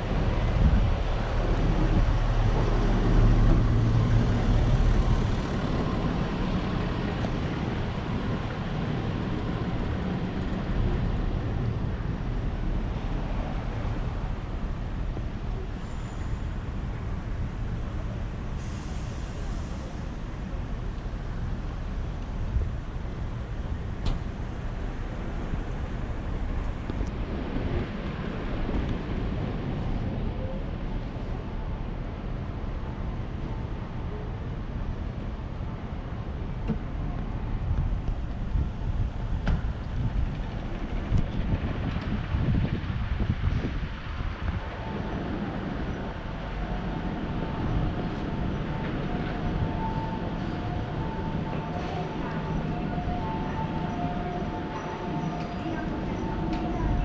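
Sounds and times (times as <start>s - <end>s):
wind on microphone: 0.0s - 15.4s, 37.2s - 57.0s
road traffic rumble: 0.0s - 57.0s.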